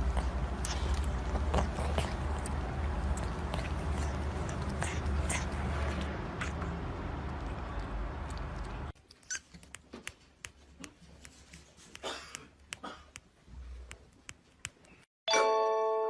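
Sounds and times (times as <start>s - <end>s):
bright chime tune: 15.3s - 16.0s.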